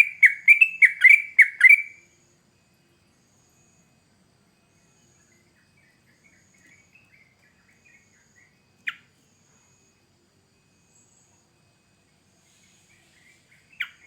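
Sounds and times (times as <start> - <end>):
bird chattering notes: 0.0 - 1.9
loud sharp bird call: 0.0 - 2.0
high insect trill: 0.0 - 14.0.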